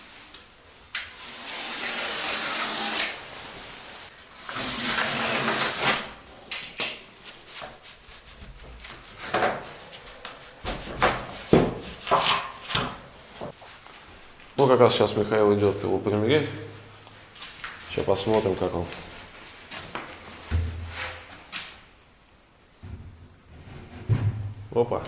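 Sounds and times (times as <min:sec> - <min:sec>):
board being cut by hand: 0:01.1 - 0:03.2, 0:04.5 - 0:06.2.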